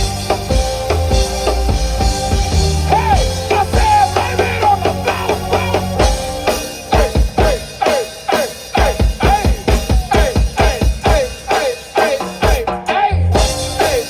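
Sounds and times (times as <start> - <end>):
bass line: 0.0 - 7.7, 13.0 - 14.0
pitch-bending melodic lead: 0.0 - 7.8
drum kit: 0.0 - 14.0.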